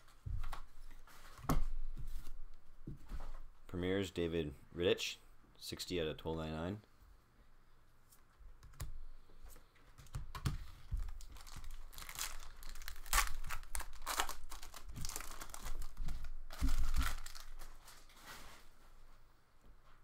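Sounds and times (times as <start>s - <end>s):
foil wrapper crinkling and tearing: 11.0s - 18.1s.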